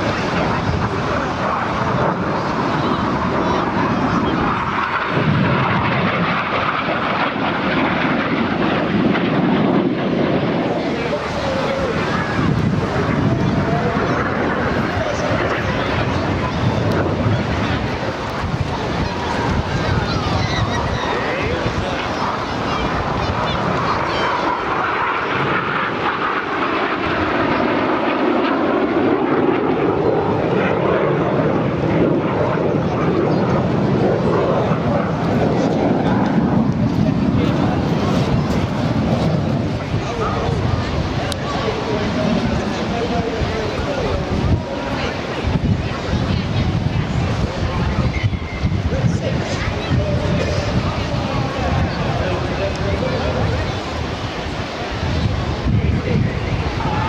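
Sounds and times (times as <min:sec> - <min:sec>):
jet engines flying over: 0:00.0 - 0:57.0.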